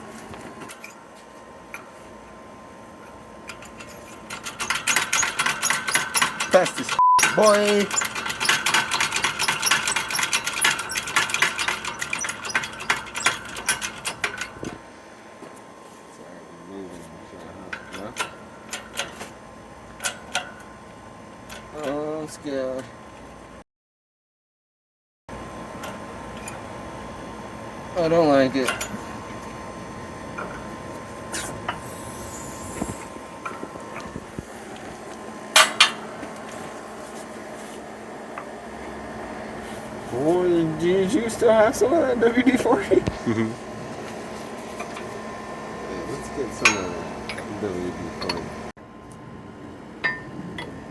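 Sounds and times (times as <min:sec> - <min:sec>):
metallic creaks and ticks: 0:03.5 - 0:14.5
shop press metallic clicking: 0:03.5 - 0:14.5.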